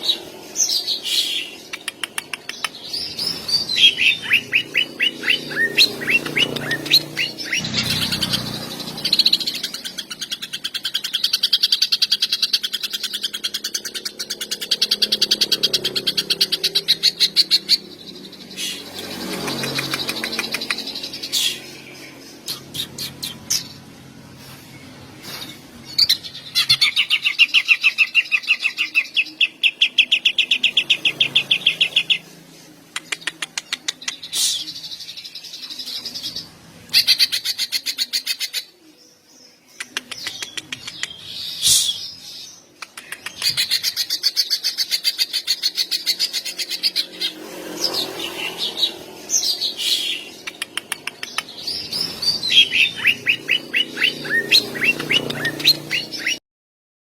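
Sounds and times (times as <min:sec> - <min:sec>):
bird singing: 0:00.0 - 0:24.2, 0:24.8 - 0:56.4.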